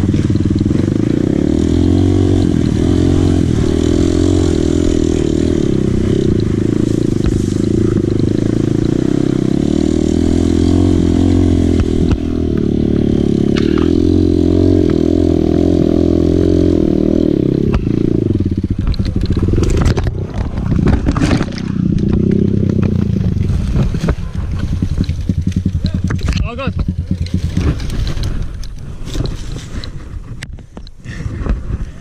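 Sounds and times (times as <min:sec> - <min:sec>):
dirt bike engine running: 0:00.0 - 0:32.0
rattling and scraping clatter: 0:02.4 - 0:09.1, 0:17.7 - 0:32.0.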